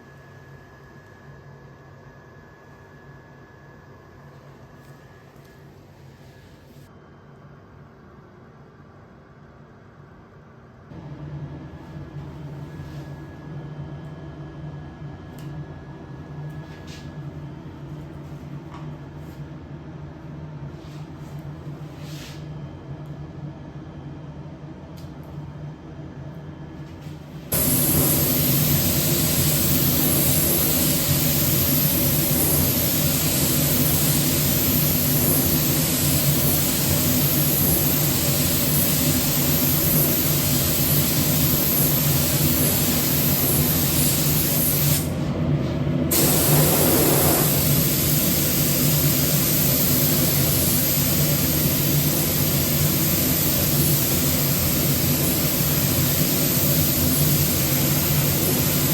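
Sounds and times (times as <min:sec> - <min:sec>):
low machine hum: 0:00.0 - 0:58.9
spray gun hissing: 0:27.5 - 0:45.1, 0:46.1 - 0:58.9.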